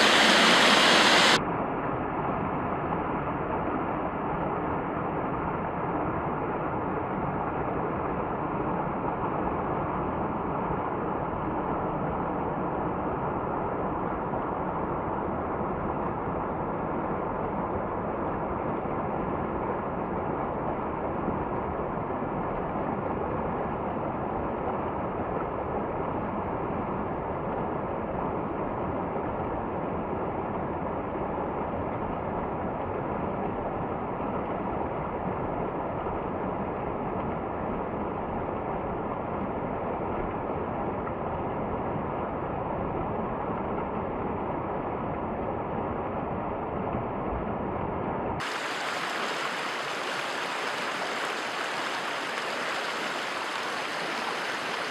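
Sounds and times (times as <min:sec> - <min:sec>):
rushing water: 0:00.0 - 0:01.4, 0:48.4 - 0:54.9.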